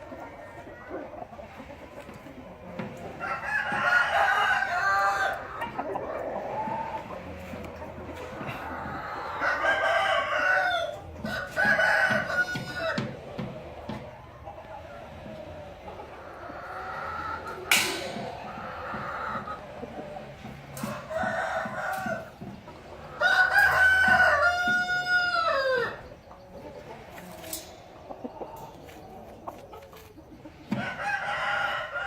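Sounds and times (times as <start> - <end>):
chickens clucking: 0.0 - 32.0
rooster crowing: 3.1 - 5.6, 8.5 - 13.2, 20.8 - 22.4, 23.1 - 26.1, 30.7 - 32.0.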